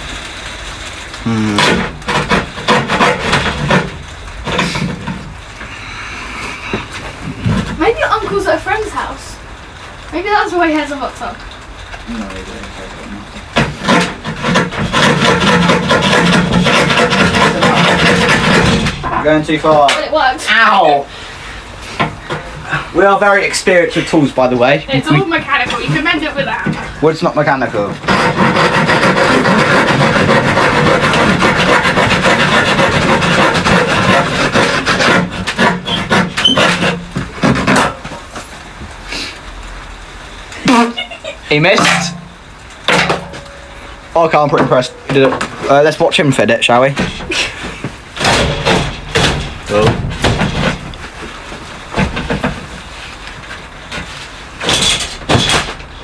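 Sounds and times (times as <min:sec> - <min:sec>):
wood scraping: 0:00.0 - 0:09.2, 0:11.5 - 0:40.9, 0:41.5 - 0:56.0
handsaw cutting wood: 0:01.5 - 0:05.2, 0:13.6 - 0:19.4, 0:27.6 - 0:37.9
wood knocking: 0:01.6 - 0:05.4, 0:13.5 - 0:20.1, 0:27.8 - 0:38.5, 0:46.9 - 0:52.9, 0:53.9 - 0:56.0
knocks: 0:13.6 - 0:20.1, 0:41.7 - 0:43.7, 0:46.9 - 0:51.1, 0:51.9 - 0:52.7, 0:54.0 - 0:55.9.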